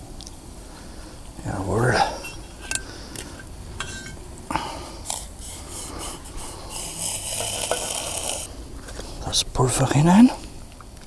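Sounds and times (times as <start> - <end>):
cookware clinking: 3.8 - 4.2
rubbing and rustling: 4.9 - 9.2.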